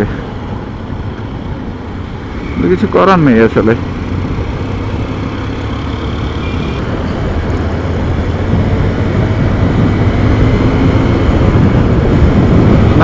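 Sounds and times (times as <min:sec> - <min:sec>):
motorcycle engine drone: 0:00.0 - 0:13.0
wind and road noise: 0:00.0 - 0:13.0.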